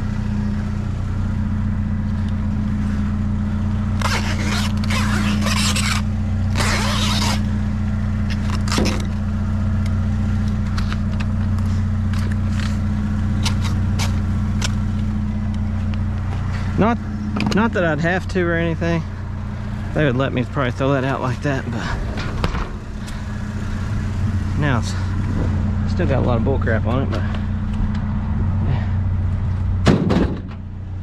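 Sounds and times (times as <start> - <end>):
low engine hum: 0.0 - 31.0
box cutter blade scraping: 4.0 - 7.5, 8.3 - 9.2, 13.4 - 14.2.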